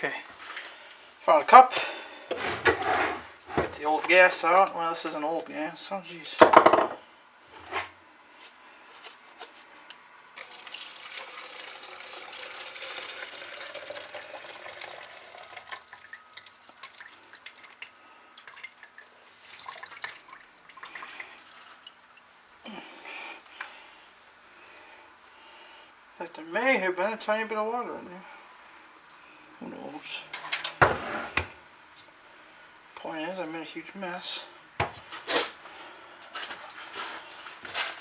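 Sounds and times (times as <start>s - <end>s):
fuel trickling into cup: 10.4s - 22.0s
fuel dripping: 10.4s - 22.3s.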